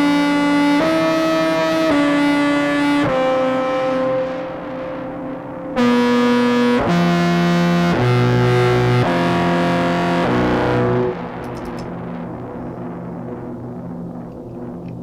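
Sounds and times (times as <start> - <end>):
fuzzed bass clarinet notes: 5.8 - 11.5.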